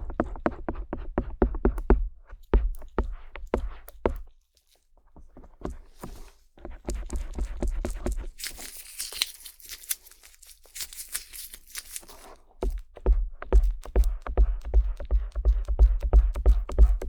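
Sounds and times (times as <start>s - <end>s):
ear pick scratching microphone: 12.7s - 17.0s.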